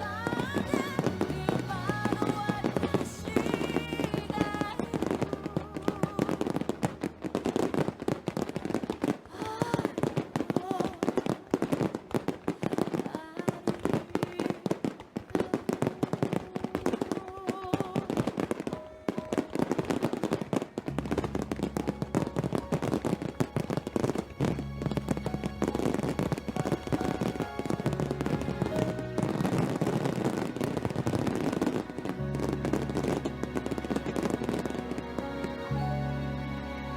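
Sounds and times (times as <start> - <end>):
music with voice: 0.0 - 7.6, 15.5 - 36.9
fireworks bursting and crackling: 0.0 - 36.8.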